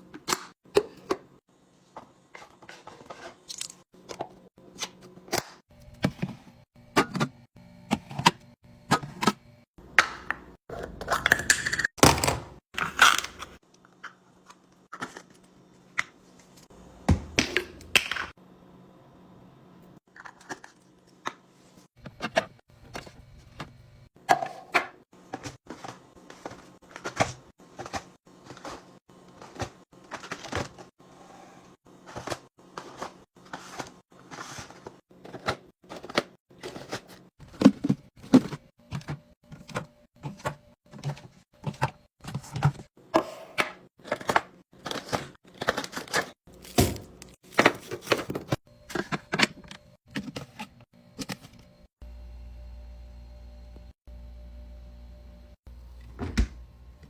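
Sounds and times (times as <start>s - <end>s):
objects being handled and set down: 0.1s - 9.4s, 31.6s - 51.7s.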